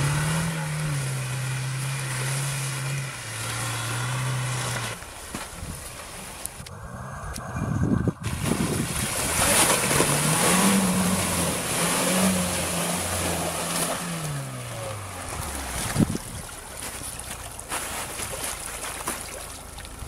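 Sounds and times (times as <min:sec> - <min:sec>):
car engine revving hard: 0:00.0 - 0:05.1, 0:08.2 - 0:16.0
wheels spraying slush and water: 0:00.0 - 0:06.7, 0:08.2 - 0:20.0.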